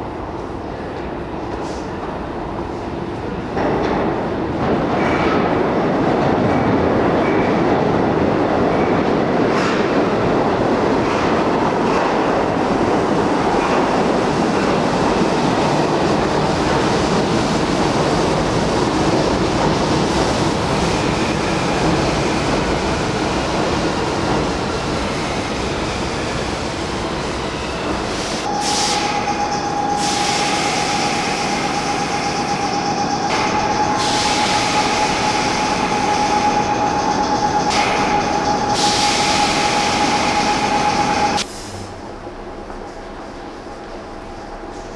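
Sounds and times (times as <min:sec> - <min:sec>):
subway train rumbling on rails: 0:00.0 - 0:44.9
steady high-pitched tone: 0:28.4 - 0:41.5.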